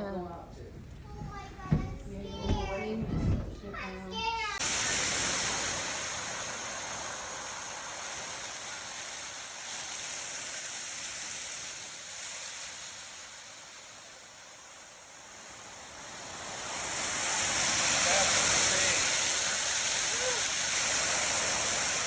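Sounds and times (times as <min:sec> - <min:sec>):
storm rushing hiss: 0:04.5 - 0:22.0.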